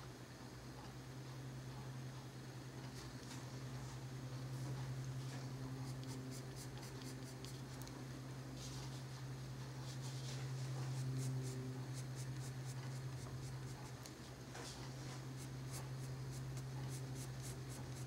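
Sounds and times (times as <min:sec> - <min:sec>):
low electrical hum: 0:00.0 - 0:18.0
colored pencil scratching on paper: 0:05.7 - 0:07.8, 0:09.8 - 0:18.0.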